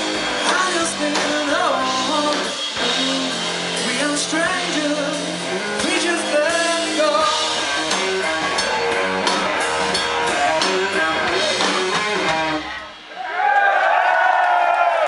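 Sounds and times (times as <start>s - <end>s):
person singing: 0.0s - 12.9s
rock band playing: 0.0s - 13.5s.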